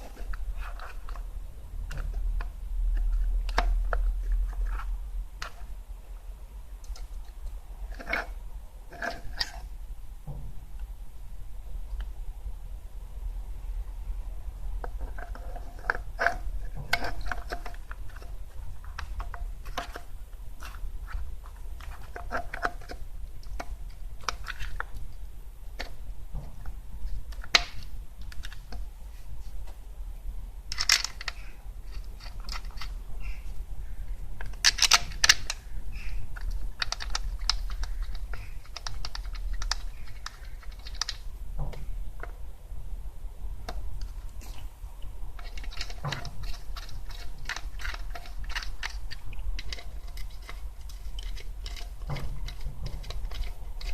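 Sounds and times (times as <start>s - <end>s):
steady low hum: 0.0s - 53.9s
hand tools clicking and tapping: 34.4s - 42.4s, 45.4s - 53.9s.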